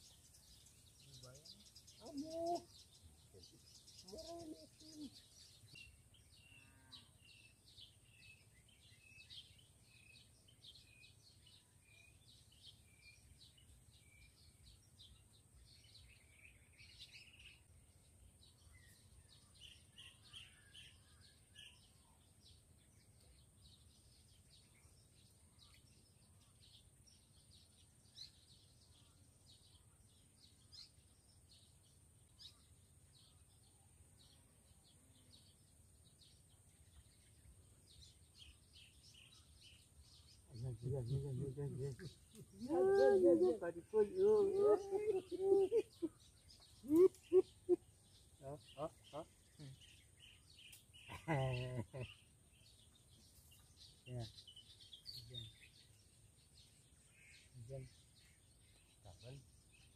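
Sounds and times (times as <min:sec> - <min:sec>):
faint bird chirps: 0:00.0 - 0:59.9.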